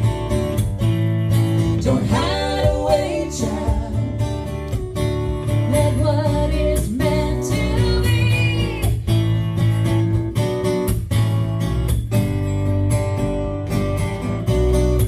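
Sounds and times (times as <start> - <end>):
acoustic guitar strumming: 0.0 - 15.0
woman singing: 1.7 - 4.5, 5.6 - 9.1.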